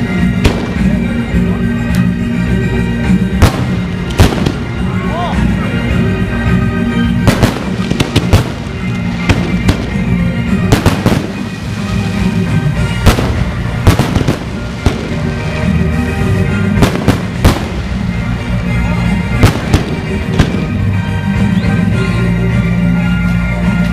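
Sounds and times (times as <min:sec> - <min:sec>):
fireworks bangs: 0:00.0 - 0:01.2, 0:03.3 - 0:05.0, 0:07.2 - 0:21.1
loud music: 0:00.0 - 0:23.9.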